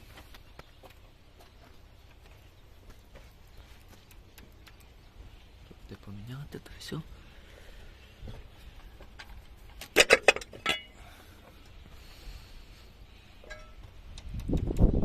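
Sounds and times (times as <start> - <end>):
metal parts clinking: 9.8 - 11.0.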